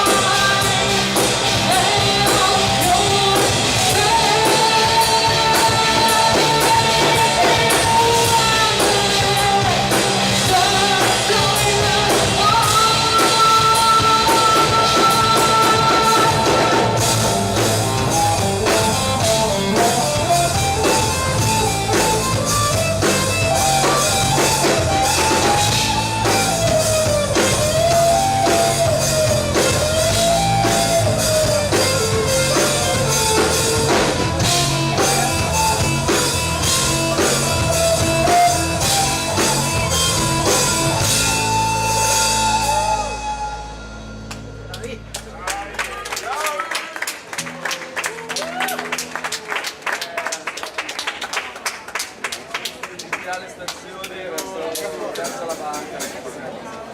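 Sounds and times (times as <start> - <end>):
person singing: 0.0 - 41.8
electric guitar: 0.0 - 45.3
drum kit: 0.0 - 45.4
bass: 0.0 - 50.6.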